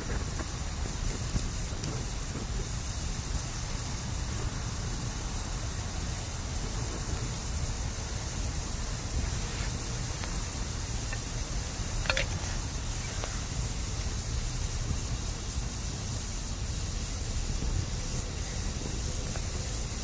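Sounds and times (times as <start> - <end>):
bamboo fire hissing: 0.0 - 20.0
sharp crack of burning bamboo: 0.0 - 20.0.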